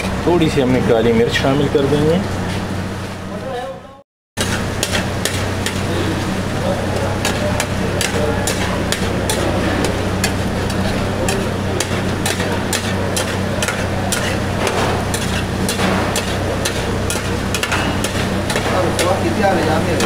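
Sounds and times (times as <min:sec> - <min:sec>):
gravy sizzling and bubbling: 0:04.4 - 0:20.0
metal spatula scraping pan: 0:07.2 - 0:20.0.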